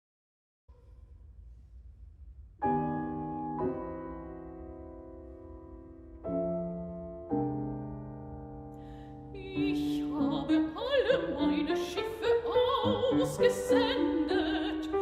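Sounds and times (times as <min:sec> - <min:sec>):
piano accompaniment: 0:02.6 - 0:15.0
soprano singing with vibrato: 0:09.4 - 0:15.0.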